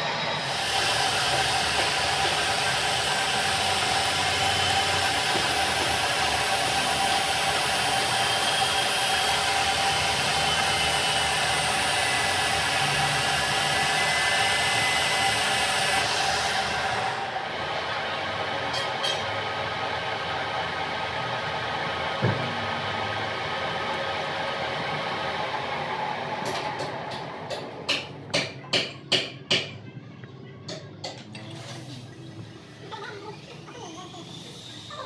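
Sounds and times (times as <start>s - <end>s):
machine whirring hiss: 0.0s - 17.4s, 31.4s - 35.0s.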